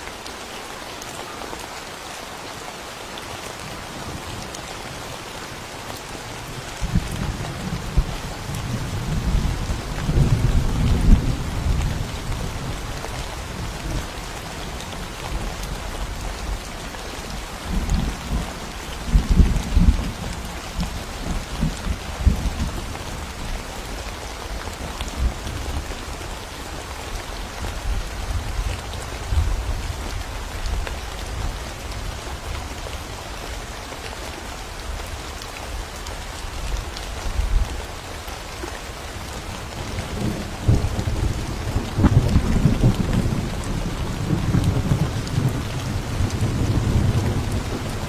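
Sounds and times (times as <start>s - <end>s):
rain falling: 0.0s - 48.0s
thunder rumbling: 39.8s - 48.0s.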